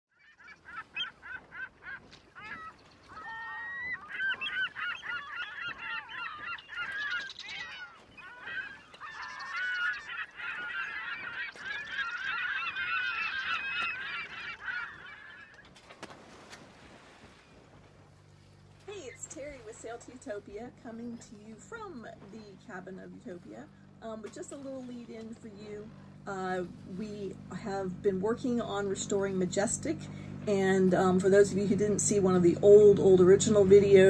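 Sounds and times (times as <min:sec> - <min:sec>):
flock of birds calling: 0:00.1 - 0:15.9.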